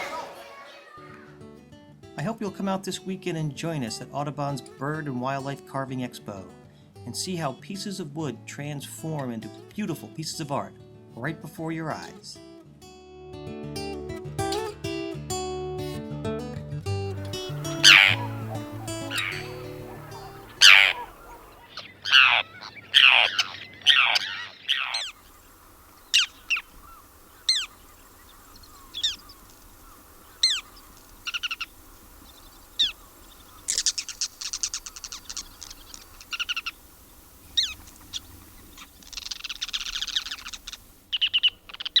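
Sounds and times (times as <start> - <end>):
buzzy bird call: 0.0 - 1.4, 17.2 - 42.0
background music: 13.0 - 21.7
bird chirps and chattering: 17.4 - 42.0.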